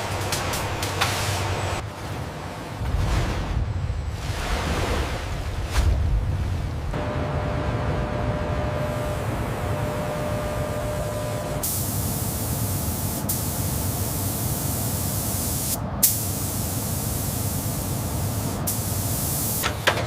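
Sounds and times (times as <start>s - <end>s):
low machinery rumble: 6.1s - 14.8s
loud spray-like hiss: 11.6s - 19.6s.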